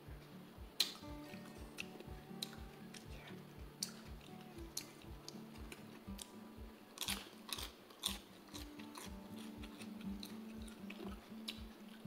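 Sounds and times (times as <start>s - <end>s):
background music with low beat: 0.0s - 12.0s
lettuce crunching and chewing: 3.8s - 12.0s.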